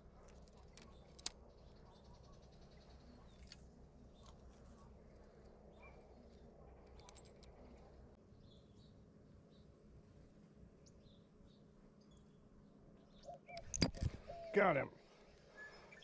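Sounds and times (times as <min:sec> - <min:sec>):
low steady hum: 0:00.0 - 0:16.0
faint bird chirps: 0:00.1 - 0:09.7, 0:10.8 - 0:16.0
light clicks: 0:00.2 - 0:01.4.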